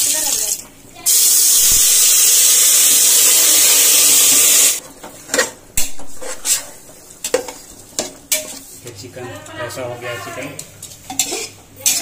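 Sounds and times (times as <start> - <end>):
chicken sizzling in hot oil: 0.0 - 4.8
metal clanks against pot: 10.6 - 12.0.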